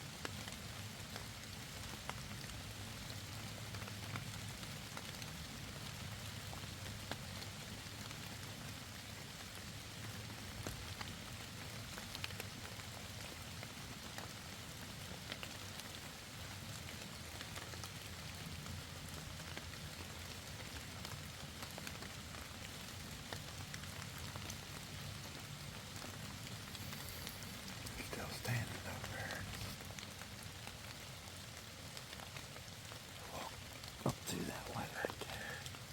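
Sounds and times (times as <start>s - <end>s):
light rain falling: 0.0s - 35.9s
raindrops ticking on leaves: 0.0s - 35.9s.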